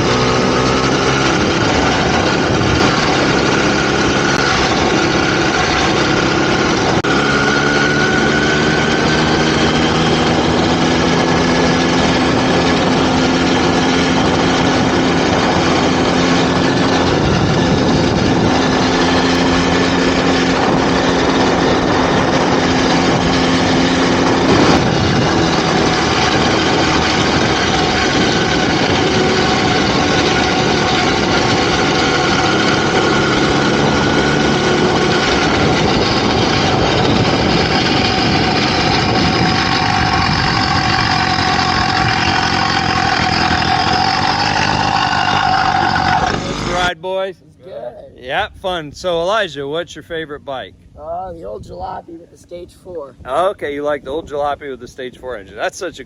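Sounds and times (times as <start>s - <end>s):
two-stroke bicycle engine running: 0.0s - 47.0s.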